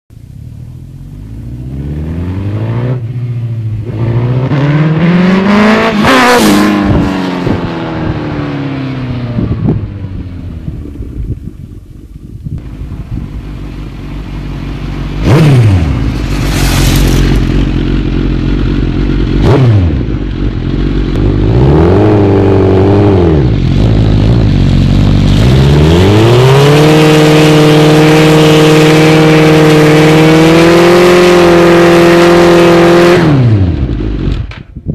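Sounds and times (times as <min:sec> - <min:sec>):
motorcycle engine revving: 0:00.5 - 0:34.6
tyre spinning rush: 0:15.7 - 0:18.2.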